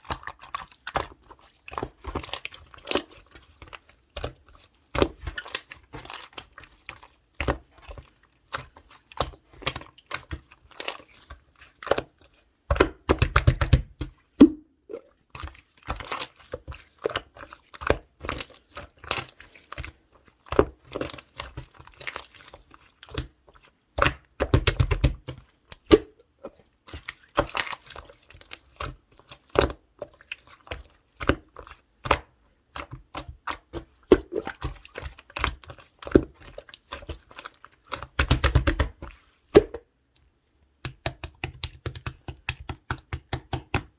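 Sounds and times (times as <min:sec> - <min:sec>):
slime squished by hand: 0:26.9 - 0:39.8.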